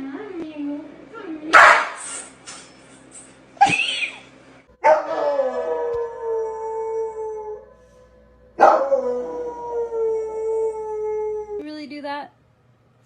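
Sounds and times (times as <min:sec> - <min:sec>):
dog howling: 0:04.8 - 0:07.7, 0:08.6 - 0:11.6.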